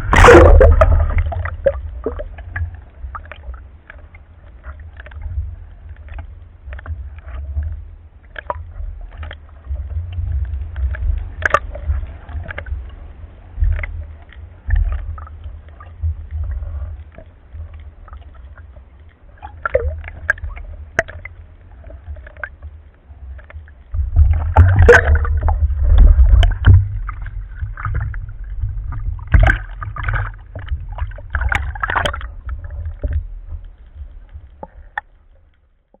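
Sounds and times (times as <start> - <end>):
gurgling splashy bursts: 0.0 - 2.4, 24.2 - 33.1
underwater low rumble: 0.0 - 36.0
underwater clicks: 10.1 - 13.0, 19.5 - 21.4, 23.3 - 36.0.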